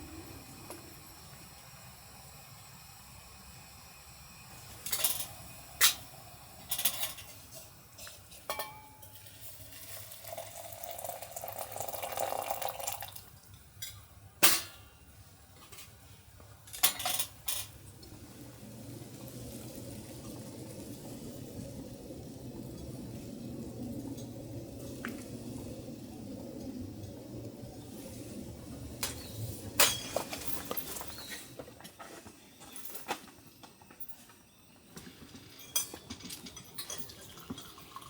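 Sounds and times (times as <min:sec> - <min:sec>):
cookware and dishes clinking: 0:08.3 - 0:09.3, 0:35.6 - 0:38.0
water pouring: 0:09.2 - 0:13.4, 0:37.0 - 0:38.0.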